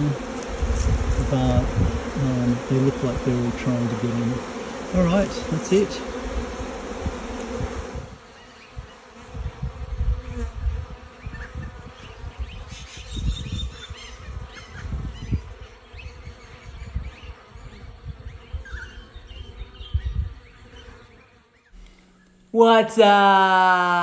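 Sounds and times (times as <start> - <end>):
bees buzzing: 0.0 - 9.3.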